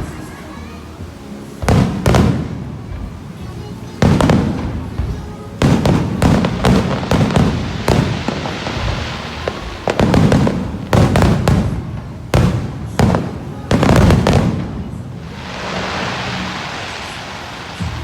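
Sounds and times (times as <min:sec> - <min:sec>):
fireworks booming and crackling: 0:00.0 - 0:18.0.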